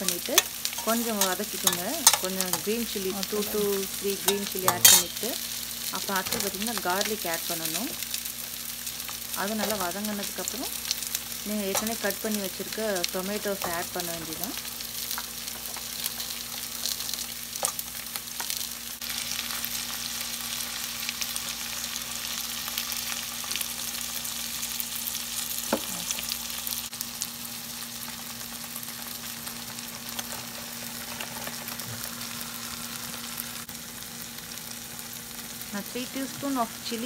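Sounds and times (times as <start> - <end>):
vegetables sizzling in oil: 0.0 - 37.0
metal spoon clicking on a pan: 0.4 - 2.6.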